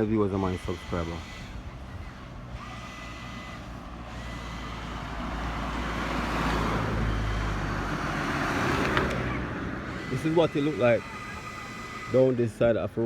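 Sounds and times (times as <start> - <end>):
motor vehicle driving past: 1.8 - 12.1.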